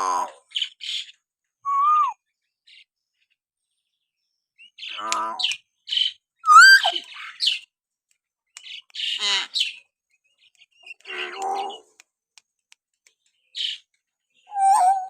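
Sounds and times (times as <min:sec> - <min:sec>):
bird chirps and whistles: 0:01.6 - 0:02.2, 0:06.4 - 0:07.5, 0:14.5 - 0:15.0
harsh rasping bird call: 0:04.8 - 0:05.6, 0:06.4 - 0:07.6, 0:09.0 - 0:09.8, 0:10.8 - 0:12.0.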